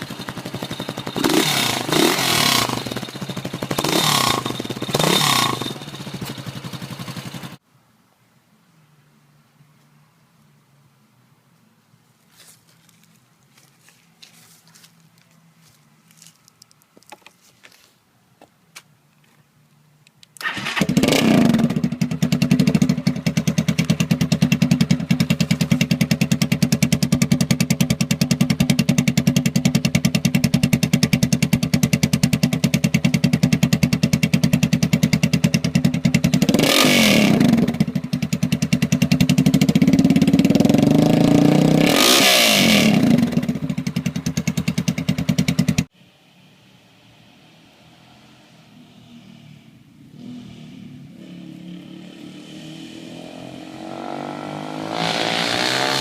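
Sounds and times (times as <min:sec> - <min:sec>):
motorcycle engine idling and revving: 0:00.0 - 0:07.6, 0:20.4 - 0:56.0.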